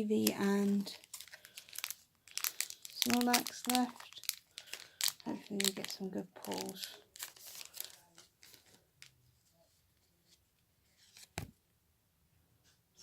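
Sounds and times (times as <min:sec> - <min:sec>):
foil wrapper and cards rustling: 0:00.0 - 0:09.1.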